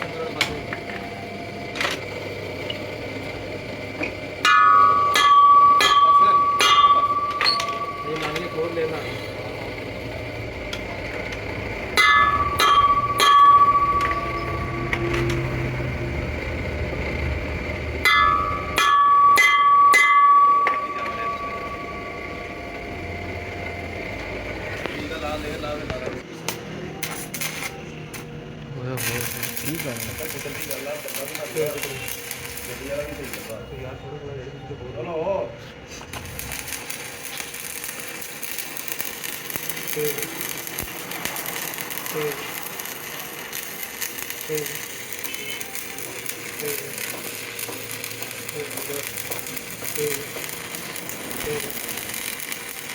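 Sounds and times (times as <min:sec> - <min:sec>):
low machine hum: 0:00.0 - 0:52.9
hammer striking steel: 0:04.0 - 0:09.4, 0:11.9 - 0:16.0, 0:18.0 - 0:22.9
thin high ringing tone: 0:04.4 - 0:09.9, 0:12.0 - 0:16.2, 0:18.0 - 0:24.0, 0:29.0 - 0:35.3, 0:36.2 - 0:52.9.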